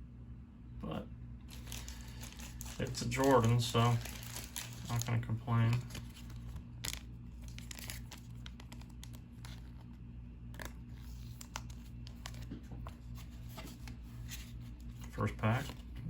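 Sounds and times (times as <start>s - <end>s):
low electrical hum: 0.0s - 16.0s
wrapper crinkling: 1.5s - 9.8s
cards rustling: 1.5s - 16.0s.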